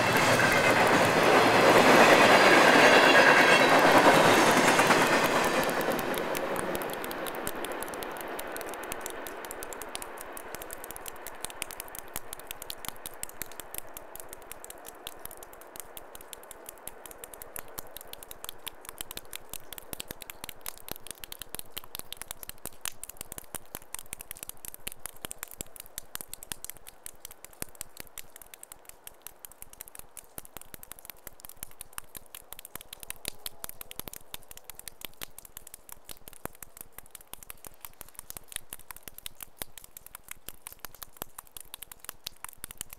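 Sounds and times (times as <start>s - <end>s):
train passing: 0.0s - 11.6s
dense irregular crackle: 0.0s - 42.9s.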